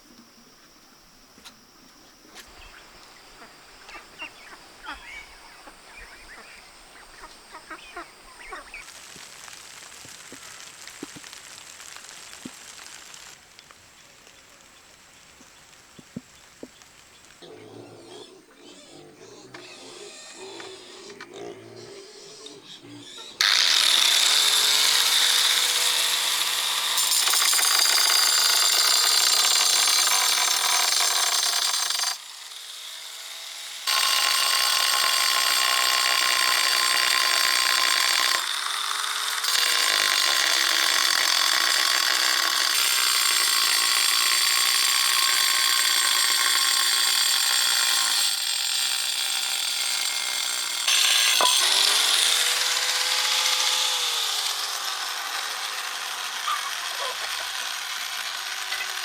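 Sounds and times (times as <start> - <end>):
electric power tool whining: 0.0 - 17.4, 23.4 - 59.0.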